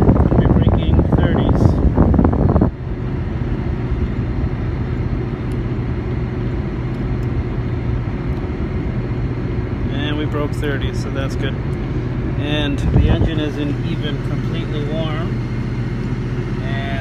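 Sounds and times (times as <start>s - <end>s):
air conditioning blower rushing: 0.0s - 17.0s
car engine idling hum: 0.0s - 17.0s.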